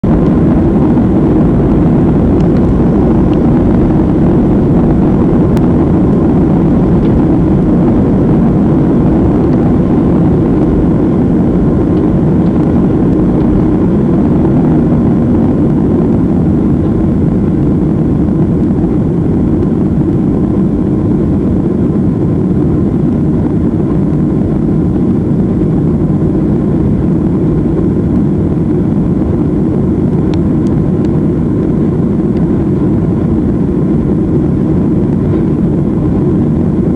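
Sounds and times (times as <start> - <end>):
jet engines roaring: 0.0 - 36.9.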